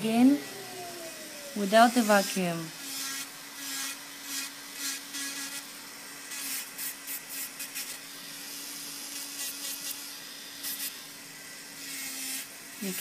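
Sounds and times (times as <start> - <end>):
electric nail drill humming: 0.0 - 13.0
drill bit grinding fingernail: 1.8 - 5.7, 6.3 - 11.0.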